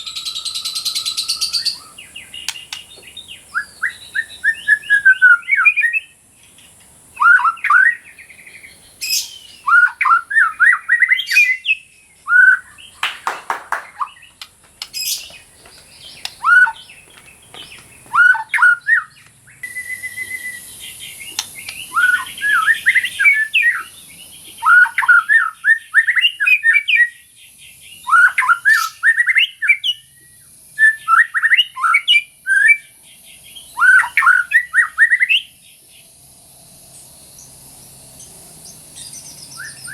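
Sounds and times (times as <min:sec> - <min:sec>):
bird singing whistled phrases: 0:00.0 - 0:06.2, 0:07.2 - 0:08.0, 0:09.0 - 0:13.0, 0:16.1 - 0:16.9, 0:18.0 - 0:24.0, 0:24.6 - 0:27.3, 0:28.0 - 0:32.9, 0:33.6 - 0:35.6, 0:39.0 - 0:39.9.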